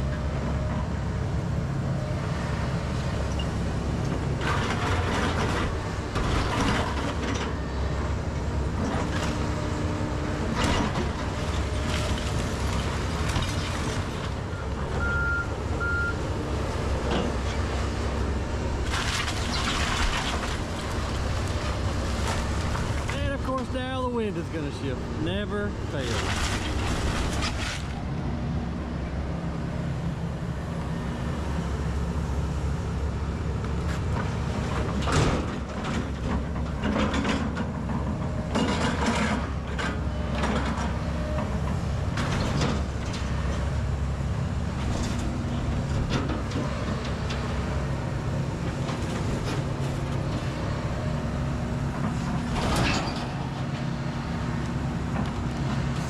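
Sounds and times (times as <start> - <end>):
excavator diesel engine running: 0.0 - 56.0
debris cracking and crashing: 18.8 - 23.4.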